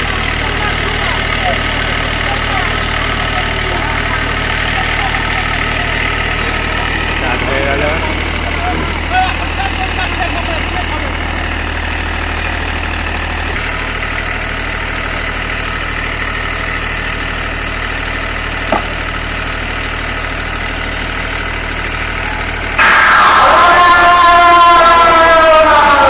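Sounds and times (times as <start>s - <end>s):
diesel generator idling: 0.0s - 26.0s
loud pitched tone from speakers: 22.8s - 26.0s.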